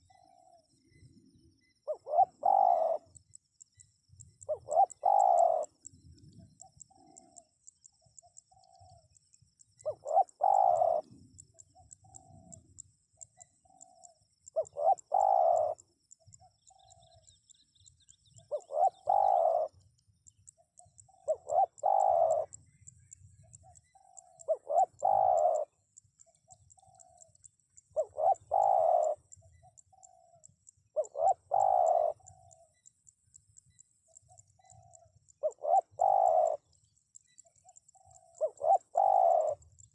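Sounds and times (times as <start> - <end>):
dove cooing: 0.0 - 3.3, 4.2 - 9.1, 9.8 - 12.8, 13.4 - 17.2, 18.3 - 19.8, 20.8 - 22.6, 23.4 - 25.8, 26.5 - 32.8, 34.2 - 36.7, 37.6 - 39.9.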